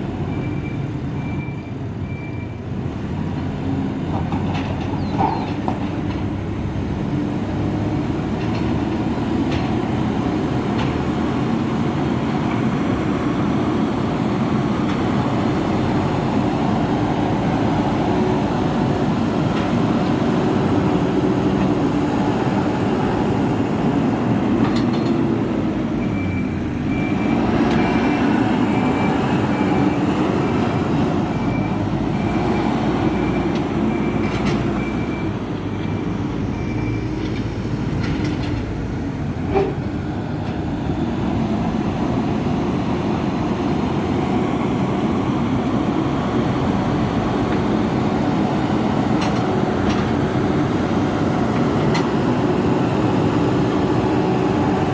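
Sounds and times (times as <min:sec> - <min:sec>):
diesel engine running under load: 0:00.0 - 0:54.9
reversing alarm beeps: 0:00.3 - 0:02.6, 0:26.0 - 0:37.3.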